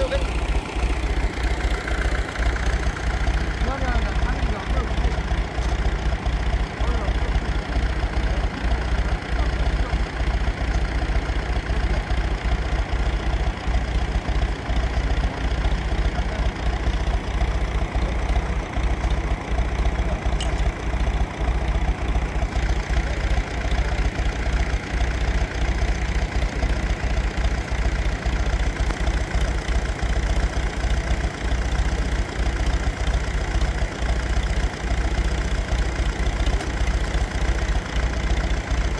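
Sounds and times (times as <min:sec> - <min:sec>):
engine running with deep pulsing: 0:00.0 - 0:38.9.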